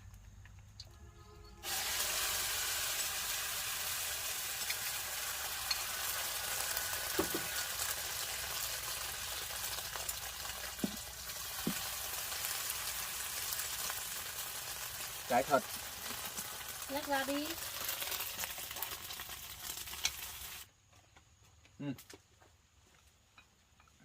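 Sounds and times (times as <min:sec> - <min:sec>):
food sizzling in a pan: 0:01.6 - 0:20.7.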